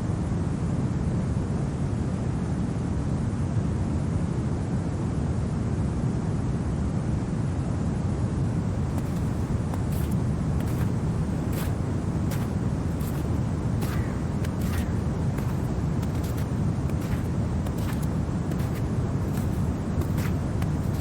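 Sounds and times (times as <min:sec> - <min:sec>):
low rumble of wind: 0:08.4 - 0:21.0.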